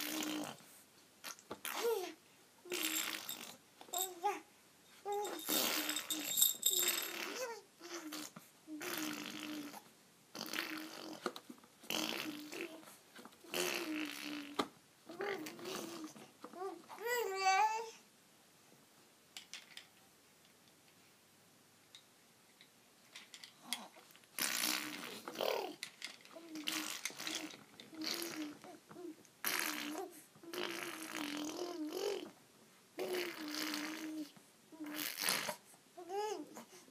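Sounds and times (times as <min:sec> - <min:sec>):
baby making croaky noises: 0:00.0 - 0:00.6, 0:01.2 - 0:04.4, 0:05.1 - 0:18.0, 0:24.4 - 0:32.4, 0:33.0 - 0:36.8.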